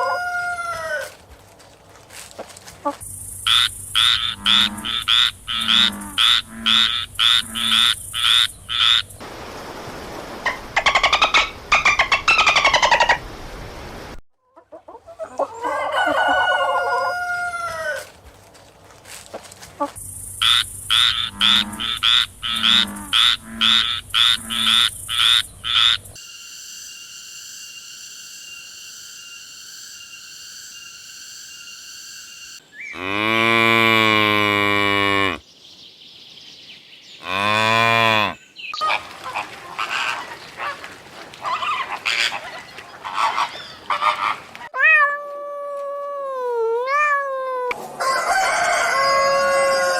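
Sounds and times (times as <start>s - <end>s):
rooster crowing: 0.0s - 1.2s, 15.5s - 18.1s, 47.9s - 49.9s
frogs croaking: 2.8s - 9.2s, 19.8s - 33.8s
chicken clucking: 14.4s - 18.1s.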